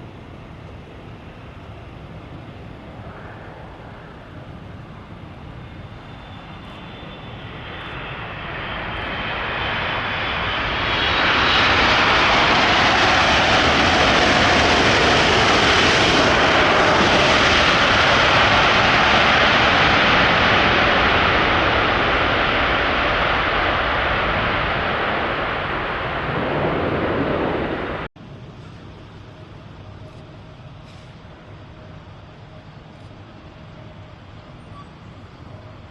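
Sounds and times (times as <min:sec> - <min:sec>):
jet airliner engines rushing: 0:00.0 - 0:35.9.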